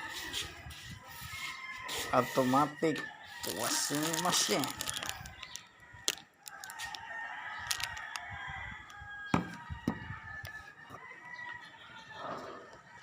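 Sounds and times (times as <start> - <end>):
rooster crowing: 1.2 - 4.6, 6.5 - 13.0.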